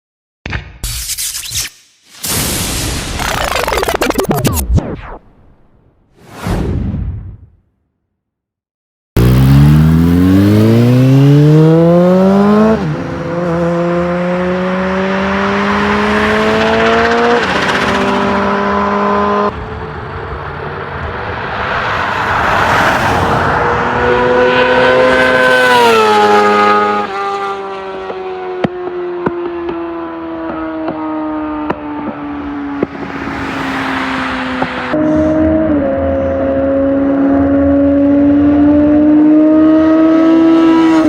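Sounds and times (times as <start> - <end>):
motorcycle engines accelerating: 9.2 - 41.0.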